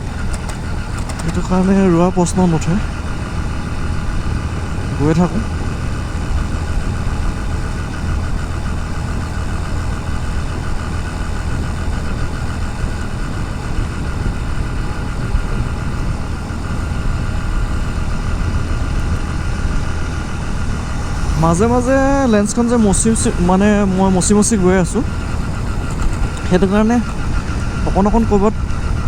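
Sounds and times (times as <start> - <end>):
motorcycle engine running: 0.0 - 29.0
road and wind noise: 0.0 - 29.0.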